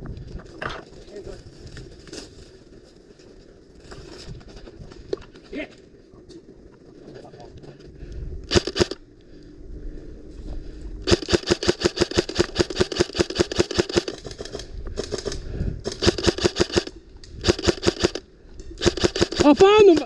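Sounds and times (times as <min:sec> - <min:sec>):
airsoft rifle firing bursts: 0:08.5 - 0:09.0, 0:11.0 - 0:18.2, 0:18.8 - 0:20.0.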